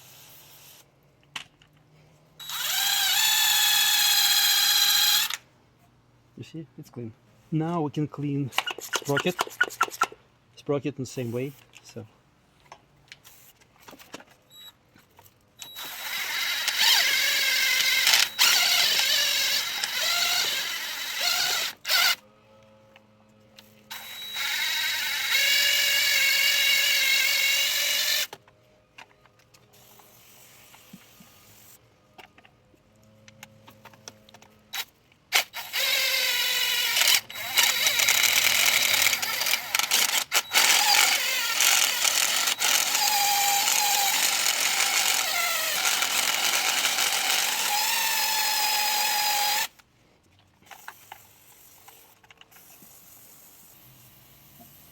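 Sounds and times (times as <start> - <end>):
power drill spinning scrub brush: 2.4 - 5.4, 8.5 - 10.2, 15.6 - 22.2, 35.3 - 49.8.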